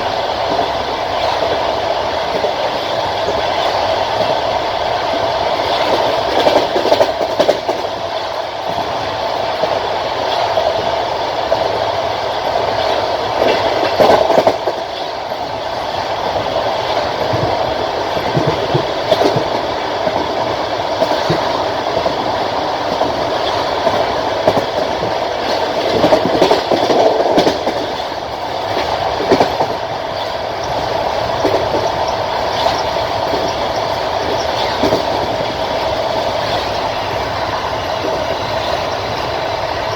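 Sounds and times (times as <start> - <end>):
rushing rumble of moving train: 0.0 - 39.9
train wheels clattering over rail joints: 0.0 - 39.9.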